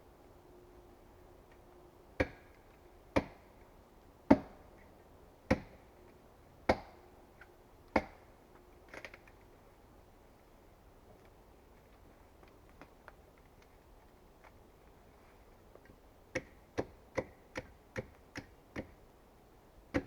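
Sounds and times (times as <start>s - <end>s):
axe chopping wood: 2.2s - 2.5s, 3.2s - 3.4s, 4.3s - 4.6s, 5.5s - 5.8s, 6.7s - 7.0s, 8.0s - 8.2s.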